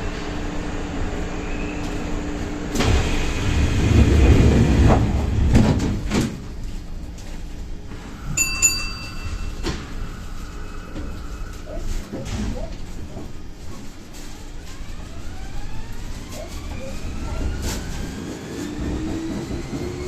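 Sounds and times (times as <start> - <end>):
train doors closing: 0.0 - 20.0.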